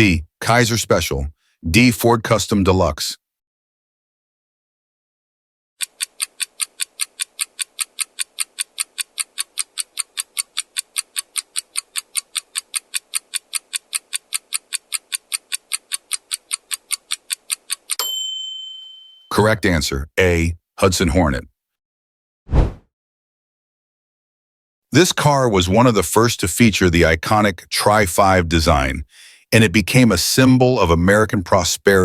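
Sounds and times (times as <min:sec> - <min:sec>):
clock-like timer ticking: 0:05.8 - 0:18.0
short bright ding: 0:18.0 - 0:19.3.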